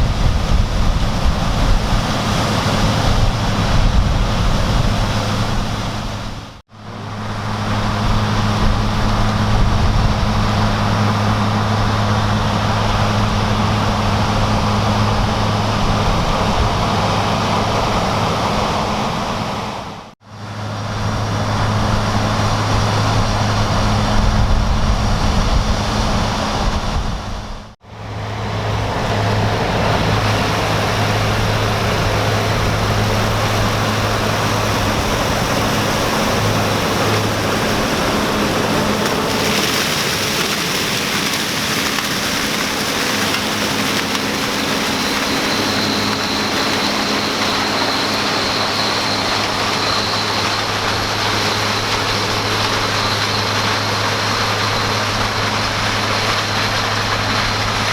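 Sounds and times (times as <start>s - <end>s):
heavy diesel machinery running: 0.0s - 57.9s.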